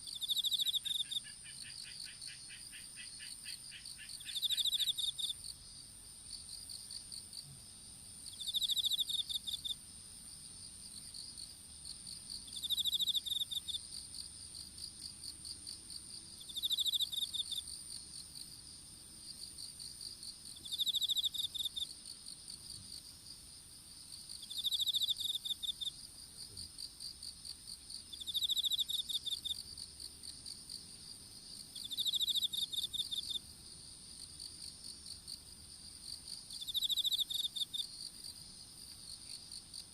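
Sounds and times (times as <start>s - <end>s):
continuous high insect trill: 0.0s - 39.9s
loud insect trill: 0.1s - 5.6s, 8.2s - 9.8s, 12.1s - 15.8s, 16.4s - 18.5s, 19.2s - 23.0s, 24.1s - 26.9s, 27.7s - 33.4s, 36.1s - 39.9s.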